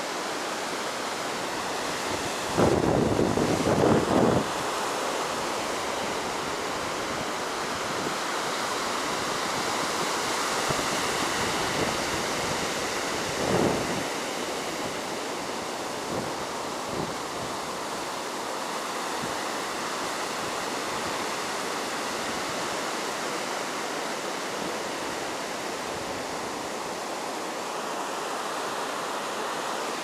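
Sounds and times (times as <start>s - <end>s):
heavy surf washing onto beach: 0.0s - 30.0s
wind buffeting microphone: 2.0s - 4.6s, 10.6s - 14.1s.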